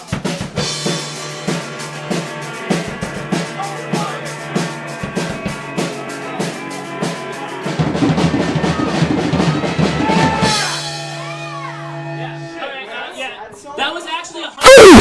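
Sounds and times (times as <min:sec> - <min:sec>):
drum kit beating steadily: 0:00.0 - 0:10.7
live rock band playing: 0:00.5 - 0:11.2
held bass note: 0:14.6 - 0:15.0.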